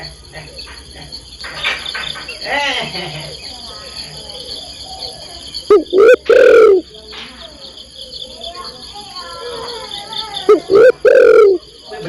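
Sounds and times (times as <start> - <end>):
crickets chirring: 0.0 - 12.0
loud close calls: 0.1 - 12.0
rising and falling calls: 3.5 - 7.0, 7.9 - 11.8.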